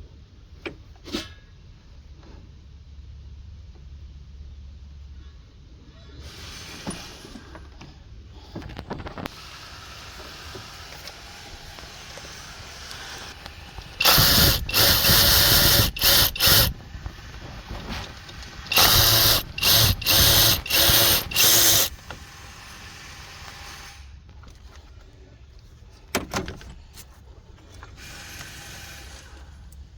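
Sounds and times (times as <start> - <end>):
power tool bursts: 13.8 - 16.8, 18.0 - 22.0.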